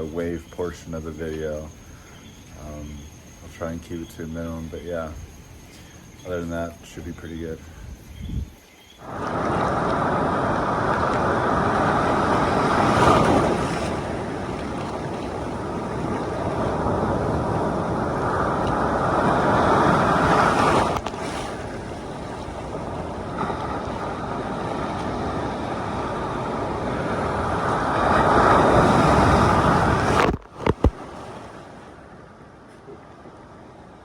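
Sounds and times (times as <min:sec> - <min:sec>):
ocean waves breaking: 0:09.0 - 0:34.0.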